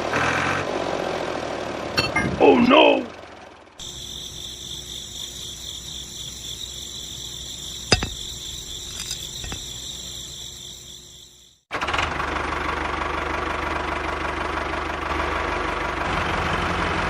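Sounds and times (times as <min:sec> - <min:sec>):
crickets chirring: 0:03.8 - 0:11.7.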